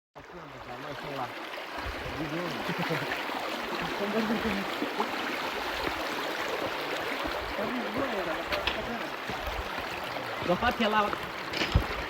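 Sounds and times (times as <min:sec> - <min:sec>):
river rushing: 0:00.5 - 0:12.0
people talking: 0:02.1 - 0:04.7, 0:07.5 - 0:09.1.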